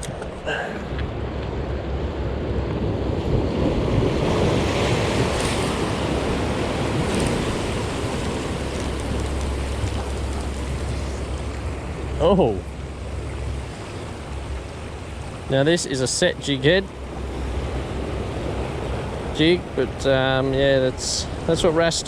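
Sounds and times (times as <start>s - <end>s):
wind rumbling on microphone: 0.0s - 15.5s
ocean surf breaking on rocks: 0.0s - 22.0s.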